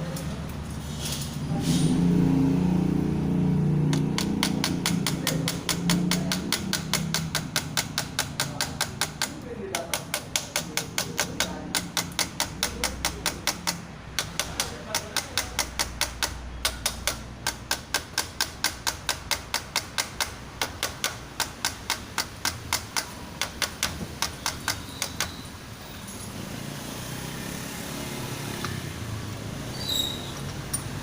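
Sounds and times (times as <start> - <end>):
rapid sharp clicks: 3.9 - 25.3.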